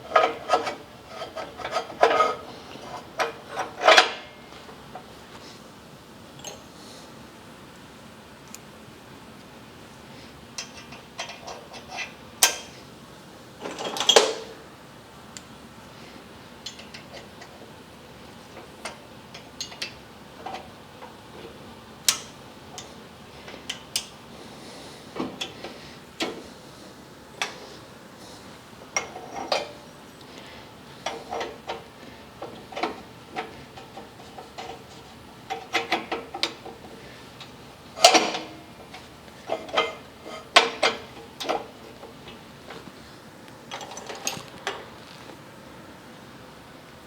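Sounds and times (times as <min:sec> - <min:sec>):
metal tools clinking and knocking: 0:06.4 - 0:06.7, 0:43.7 - 0:44.9.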